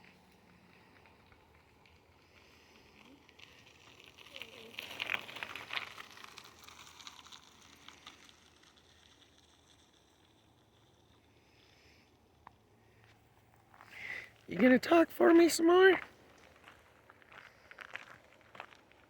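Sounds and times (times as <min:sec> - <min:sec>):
bicycle clicking: 0:00.0 - 0:11.6
bicycle tyre noise: 0:00.0 - 0:14.5, 0:16.0 - 0:19.0.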